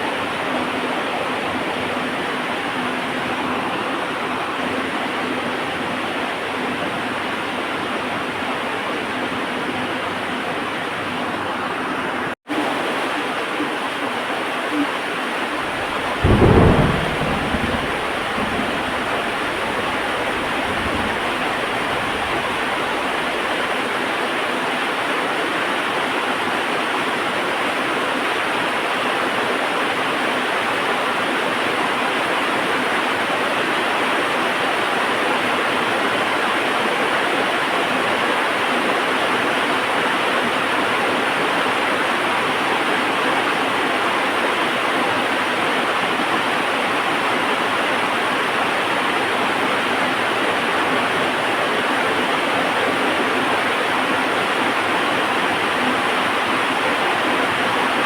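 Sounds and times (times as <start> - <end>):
heavy rain: 0.0 - 58.0
thunderclap with low rumble: 15.4 - 23.6.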